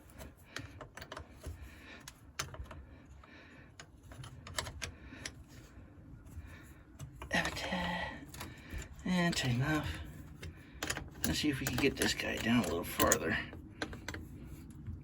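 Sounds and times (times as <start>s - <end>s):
hand tools clicking and clinking: 7.0s - 14.3s.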